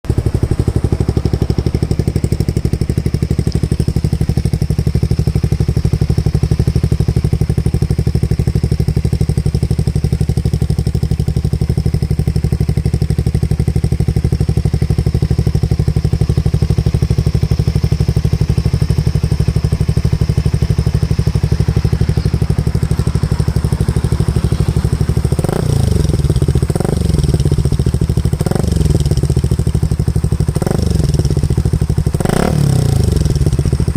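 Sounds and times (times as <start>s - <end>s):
motorcycle engine idling: 0.0s - 33.9s
engine throttle blips: 14.8s - 29.8s.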